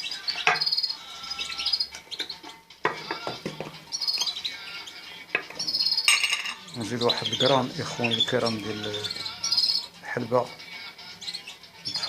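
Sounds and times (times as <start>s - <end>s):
songbirds chirping: 0.0s - 12.0s
spoon clinking against bowl: 5.4s - 6.7s.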